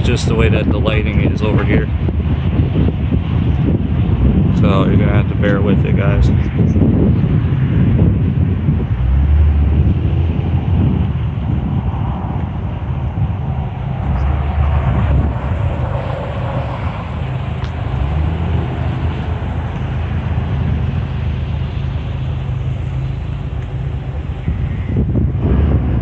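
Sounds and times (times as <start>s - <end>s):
car engine idling: 0.0s - 26.0s
wind on microphone: 0.0s - 26.0s.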